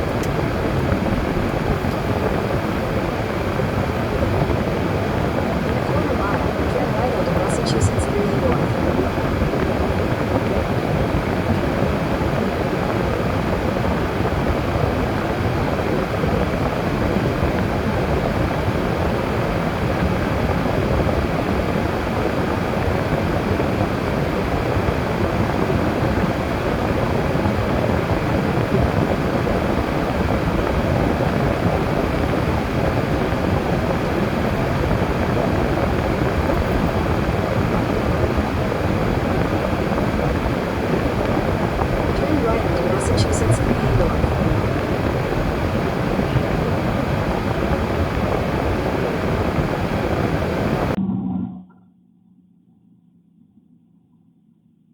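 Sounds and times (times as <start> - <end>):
car engine rumble: 0.0 - 12.1, 26.4 - 52.4
tyre road noise: 0.0 - 19.2.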